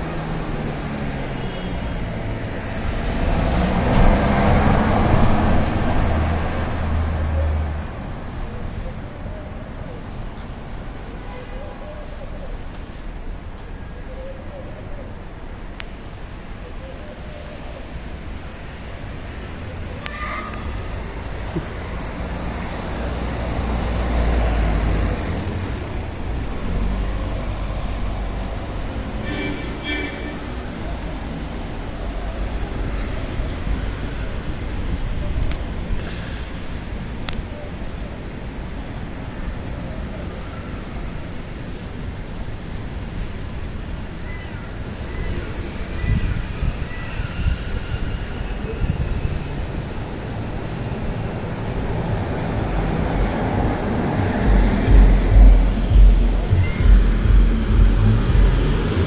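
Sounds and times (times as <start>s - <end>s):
motor vehicle passing: 0.0s - 7.9s, 51.3s - 59.0s.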